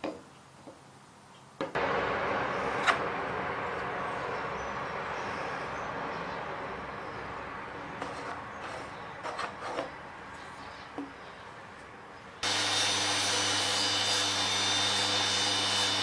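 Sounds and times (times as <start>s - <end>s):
power tool humming and whining: 12.4s - 16.0s.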